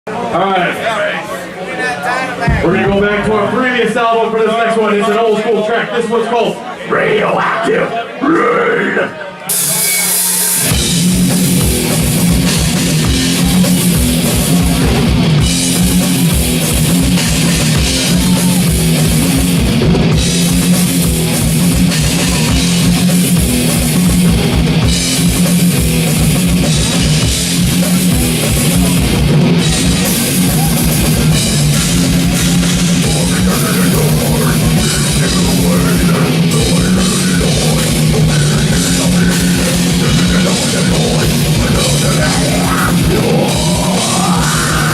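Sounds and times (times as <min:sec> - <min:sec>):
fast dense drumming: 0:02.5 - 0:03.9, 0:10.6 - 0:44.9
distorted guitars: 0:06.9 - 0:44.9
heavy metal band playing live: 0:07.2 - 0:44.9.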